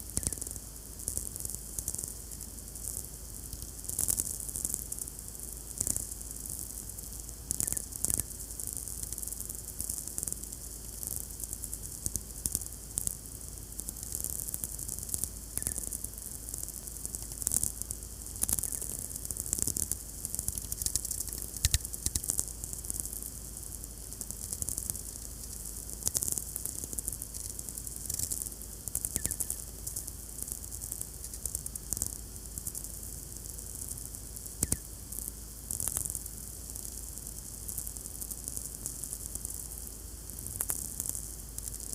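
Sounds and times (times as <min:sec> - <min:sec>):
crackling clicks: 0:00.2 - 0:00.4, 0:05.8 - 0:06.1, 0:07.5 - 0:08.3, 0:15.1 - 0:16.0, 0:17.0 - 0:17.7, 0:18.4 - 0:22.5, 0:24.2 - 0:30.1, 0:31.0 - 0:32.1, 0:34.6 - 0:34.9, 0:40.6 - 0:41.8.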